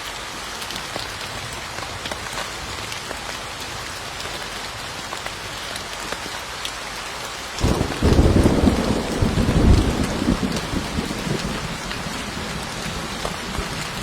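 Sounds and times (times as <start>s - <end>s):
steady rain: 0.0s - 14.0s
thunder rumble: 7.6s - 14.0s.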